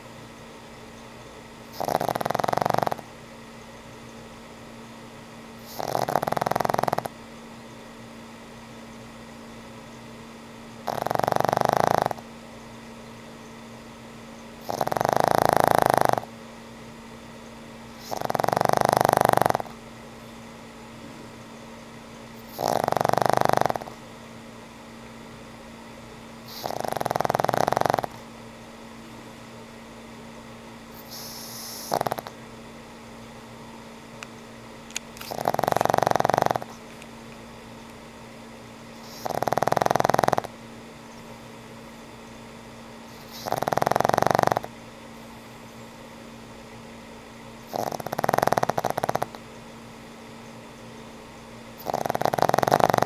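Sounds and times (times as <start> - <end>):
dog snoring: 1.7 - 3.1, 5.6 - 7.2, 10.8 - 12.3, 14.6 - 16.3, 17.9 - 19.8, 22.4 - 24.0, 26.4 - 28.3, 30.9 - 32.4, 35.2 - 36.8, 39.0 - 40.6, 43.1 - 44.7, 47.6 - 49.4, 51.8 - 53.0.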